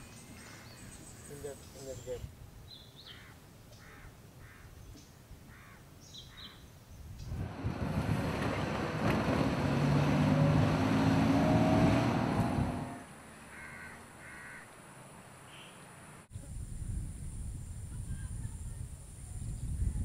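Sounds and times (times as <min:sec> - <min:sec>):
crow cawing: 0:03.1 - 0:04.7, 0:05.5 - 0:06.5, 0:13.5 - 0:14.8
vehicle engine passing: 0:07.3 - 0:13.8.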